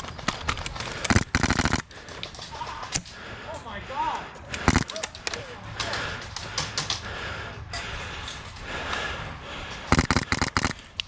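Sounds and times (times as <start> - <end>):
airsoft gunfire clicks: 0.3 - 2.0, 4.5 - 5.4, 9.9 - 11.0
heavy breathing: 0.7 - 11.0.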